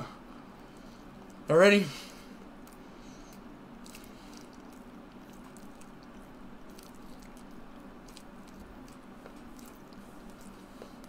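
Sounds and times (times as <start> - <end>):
low steady hum: 0.0 - 11.0
person chewing: 2.4 - 11.0.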